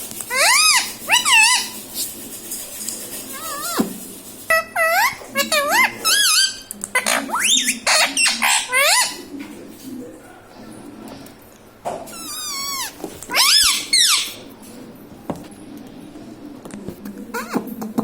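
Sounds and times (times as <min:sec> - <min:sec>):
parrot calling: 0:00.2 - 0:02.1, 0:03.2 - 0:09.3, 0:12.1 - 0:14.5.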